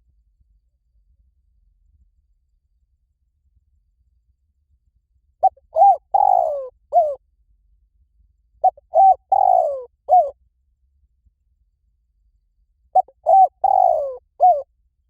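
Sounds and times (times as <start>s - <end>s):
dove cooing: 5.4s - 7.2s, 8.6s - 10.4s, 13.0s - 14.6s.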